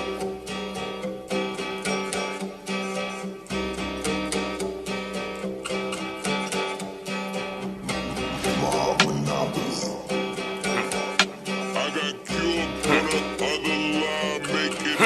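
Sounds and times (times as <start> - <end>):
plucked guitar melody: 0.0 - 15.0
deep bass: 7.4 - 10.8.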